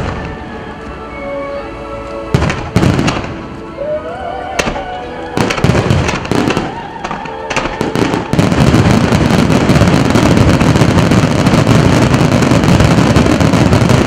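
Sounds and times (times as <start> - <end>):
firework bangs: 0.0 - 0.4, 2.3 - 3.5, 4.6 - 14.0
fireworks crackling and booming: 0.0 - 0.9, 2.3 - 14.0.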